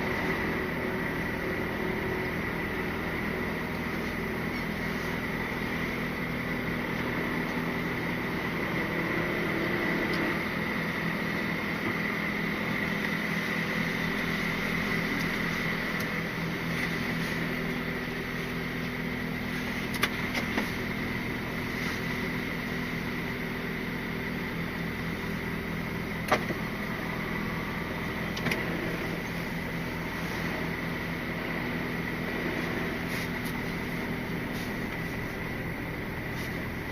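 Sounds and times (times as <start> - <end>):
diesel engine humming: 0.0 - 36.9
high whine of cab fan: 0.0 - 36.9.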